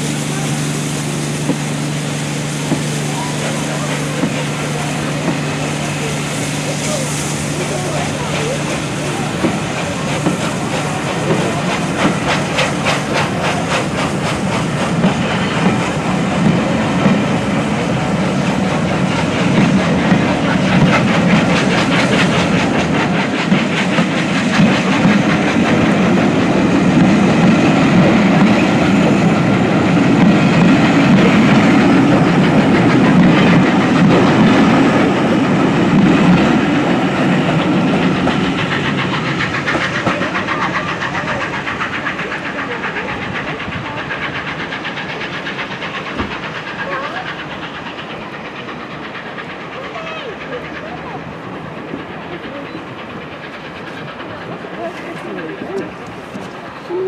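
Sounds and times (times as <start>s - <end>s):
train rumble: 0.0s - 57.0s
train wheels clattering: 0.0s - 57.0s.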